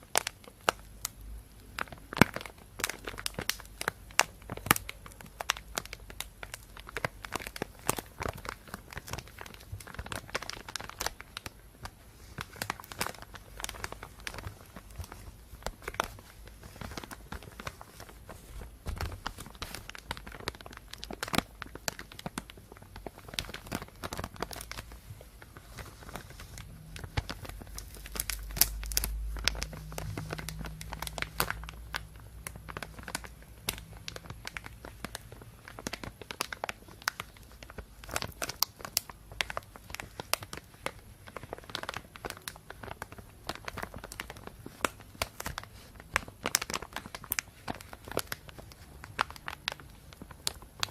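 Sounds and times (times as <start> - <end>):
plastic bag crinkling: 0.0 - 50.9
low rumble: 26.5 - 34.4.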